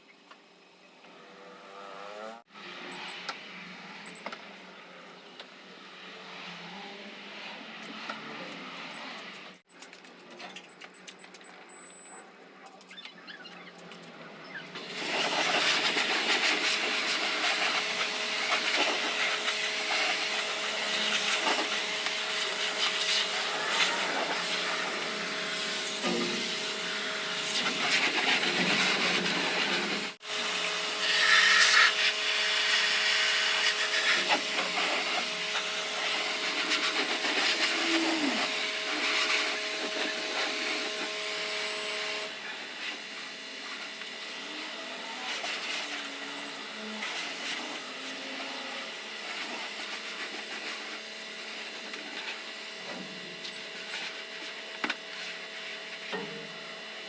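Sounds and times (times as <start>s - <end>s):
car wash spray hissing: 14.8s - 41.2s, 49.2s - 52.4s.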